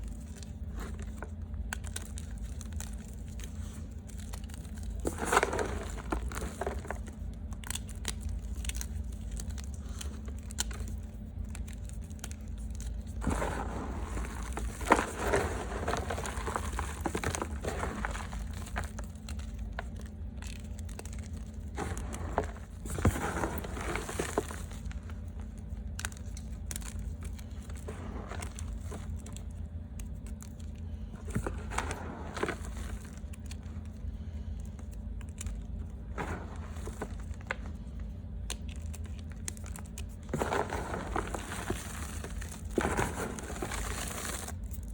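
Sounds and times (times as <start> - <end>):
chalk crunching and crumbling: 0.0 - 44.9
steady low hum: 0.0 - 44.9.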